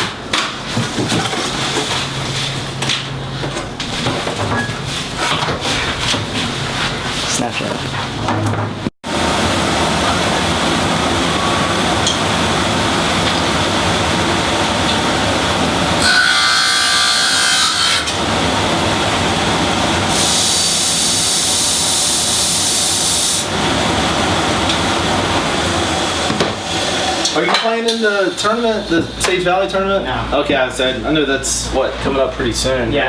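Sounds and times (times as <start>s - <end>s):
power tool running: 9.1s - 27.4s.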